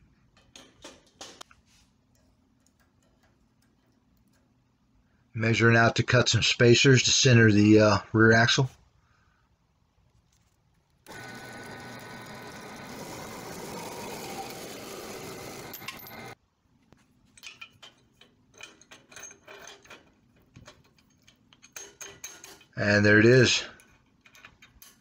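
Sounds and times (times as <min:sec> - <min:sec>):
power saw cutting metal: 0:11.1 - 0:16.4
metal parts clinking: 0:15.4 - 0:16.4, 0:17.2 - 0:25.0.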